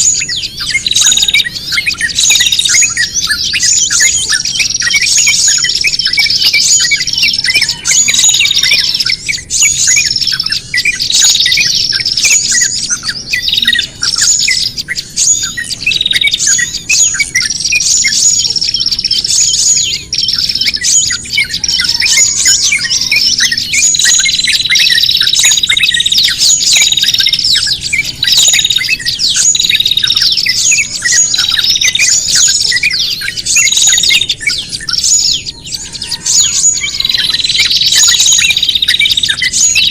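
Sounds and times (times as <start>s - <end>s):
long buzzy bird trill: 0.0s - 39.9s
songbirds calling agitatedly: 0.0s - 39.9s.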